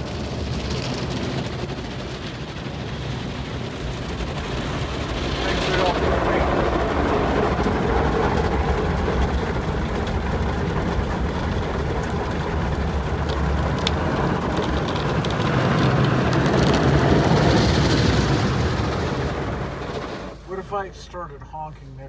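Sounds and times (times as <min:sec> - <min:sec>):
car wash water spray: 0:00.0 - 0:22.0
low rumble: 0:00.0 - 0:22.0.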